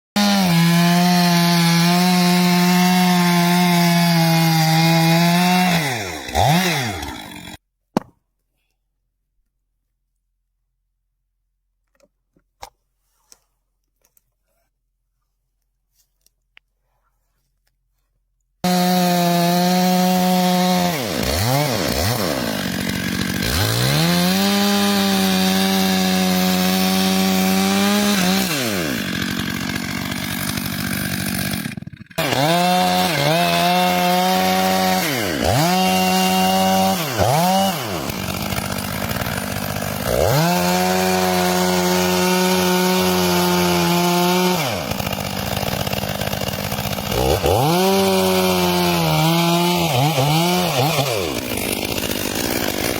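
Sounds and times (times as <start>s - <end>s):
chainsaw cutting wood: 0.2s - 7.6s, 18.6s - 52.9s.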